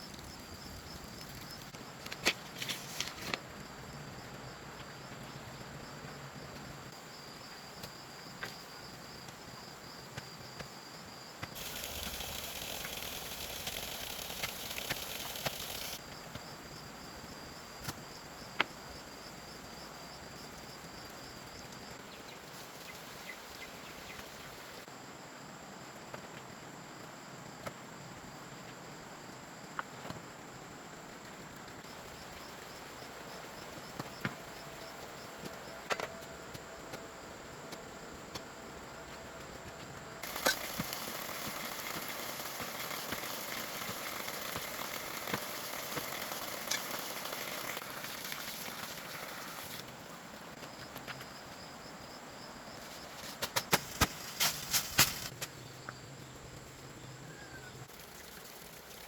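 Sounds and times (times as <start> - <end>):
insects trilling: 0.0 - 25.4, 30.5 - 59.0
loud rustling hiss: 11.5 - 16.0.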